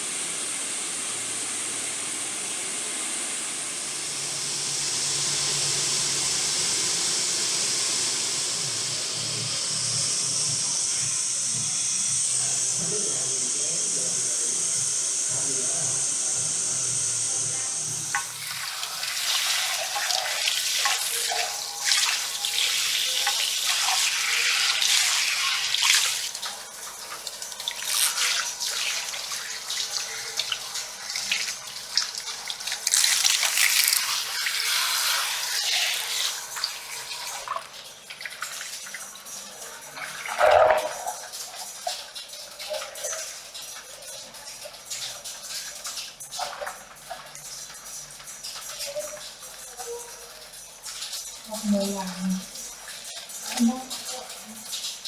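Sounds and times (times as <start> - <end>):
water spraying into sink: 0.0 - 55.0.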